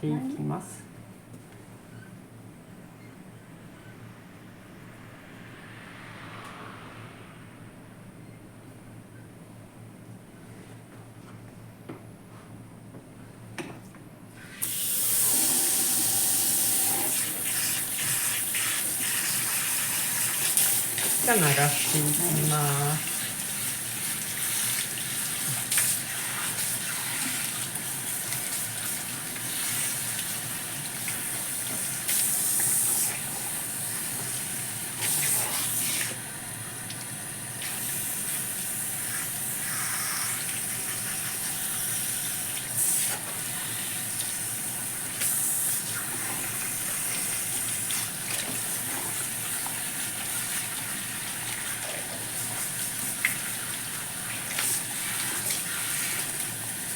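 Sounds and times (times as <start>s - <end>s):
shower spray running: 14.6s - 36.3s, 37.6s - 56.9s.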